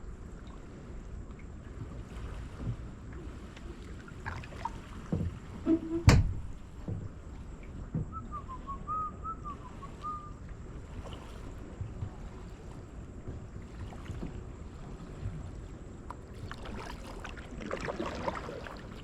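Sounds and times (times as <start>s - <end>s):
paddle strokes in water: 0.0s - 19.0s
paddle knocking against hull: 1.8s - 19.0s
short wavering whistle: 8.1s - 10.4s.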